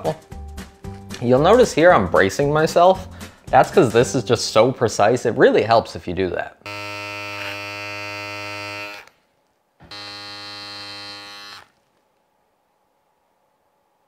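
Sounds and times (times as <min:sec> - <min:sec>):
electric beard trimmer buzzing: 0:06.7 - 0:09.1, 0:09.8 - 0:11.7.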